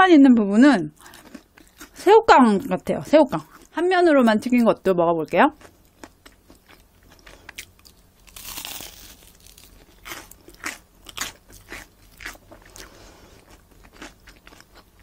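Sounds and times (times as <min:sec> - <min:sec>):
crunchy chewing: 0:01.0 - 0:02.0, 0:05.5 - 0:15.0
crunchy bite into fried toast: 0:06.4 - 0:14.7.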